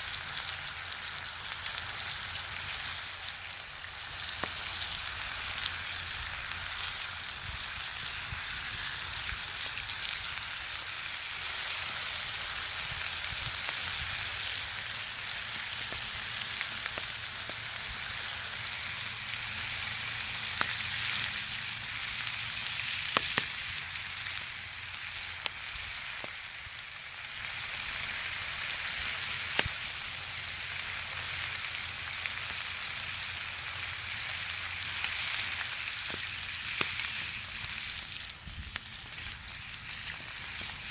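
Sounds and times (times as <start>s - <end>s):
bacon sizzling: 0.0s - 40.9s
sharp fat pops: 23.1s - 23.6s.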